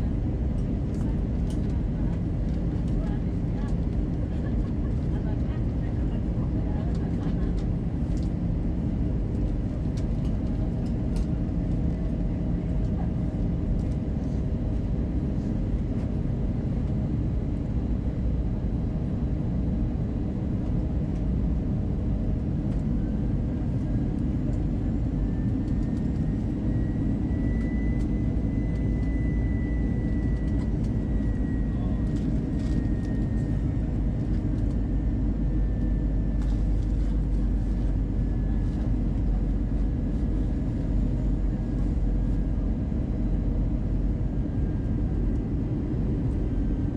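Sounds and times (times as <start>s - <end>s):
airliner cabin engine roar: 0.0s - 46.9s
faint whine: 22.8s - 46.9s.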